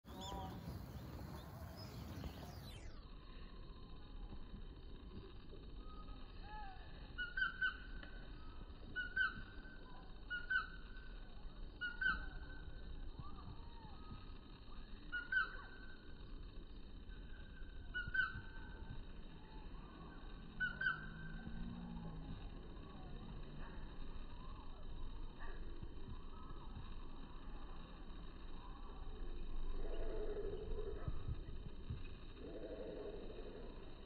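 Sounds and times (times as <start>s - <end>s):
faint outdoor background noise: 0.0s - 34.0s.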